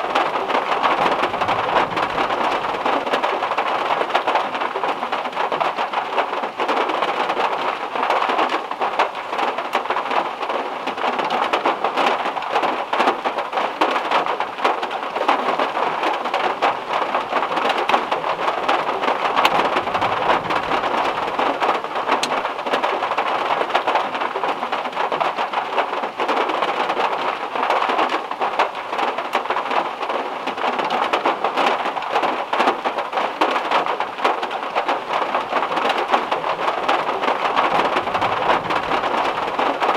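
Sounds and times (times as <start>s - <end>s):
heavy rain on a metal car roof: 0.0s - 39.9s
faint low thunder rumble: 0.5s - 3.4s, 18.0s - 22.1s, 37.6s - 39.8s.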